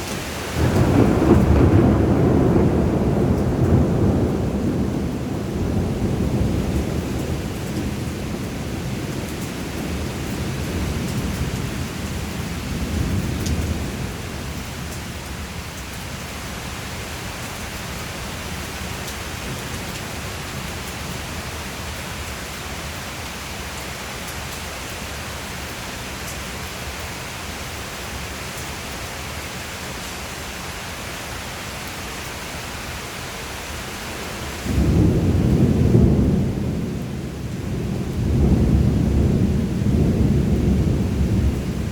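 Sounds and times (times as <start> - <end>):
rain hissing: 0.0 - 41.9
thunder rumbling: 0.3 - 14.9, 34.6 - 41.9.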